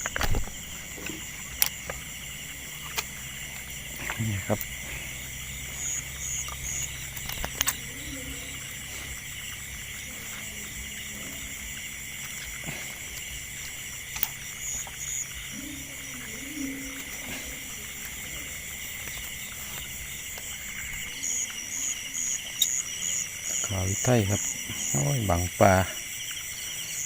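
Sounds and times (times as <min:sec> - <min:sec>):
insects and frogs trilling: 0:00.0 - 0:27.0
sharp clicks: 0:02.8 - 0:04.7, 0:06.2 - 0:07.9.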